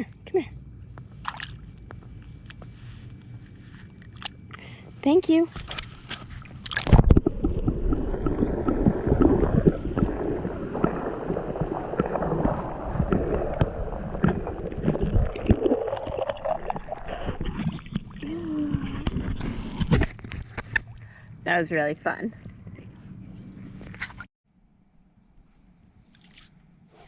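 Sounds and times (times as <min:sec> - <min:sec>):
muffled water sloshing: 0:00.9 - 0:04.9, 0:05.6 - 0:21.2.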